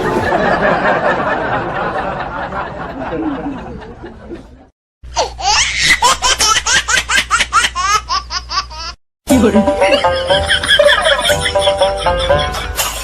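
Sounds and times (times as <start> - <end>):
loud laughter: 9.4 - 13.0.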